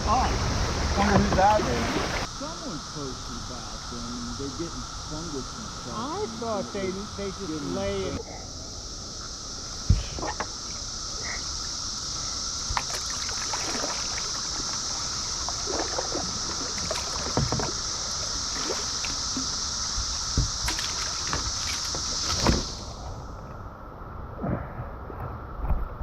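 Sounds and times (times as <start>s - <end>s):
kayak paddle splashes: 0.0s - 3.4s, 12.6s - 23.1s
cicada chorus drone: 0.0s - 26.0s.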